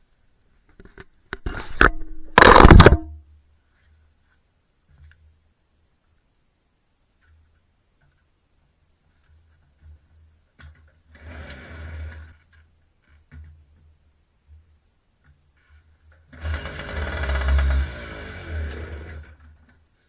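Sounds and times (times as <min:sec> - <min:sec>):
moped engine starting and running: 0:16.4 - 0:19.2.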